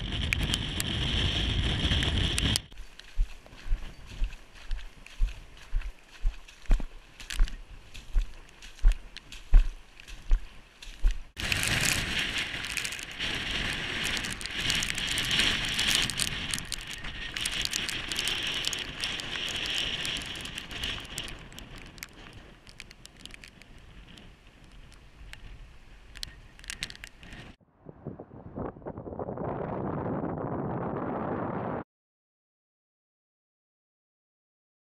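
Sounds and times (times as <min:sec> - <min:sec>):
wind buffeting the microphone: 0:00.0 - 0:31.8
rain hitting the camera: 0:11.3 - 0:27.6.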